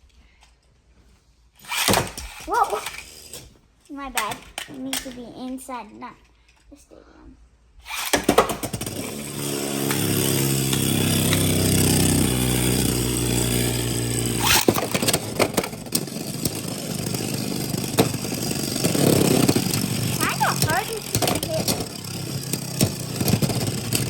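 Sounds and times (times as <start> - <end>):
spinning tops whirring: 1.6 - 3.4, 7.8 - 24.0
tops clacking and rattling: 1.6 - 3.4, 4.1 - 5.3, 7.9 - 24.0.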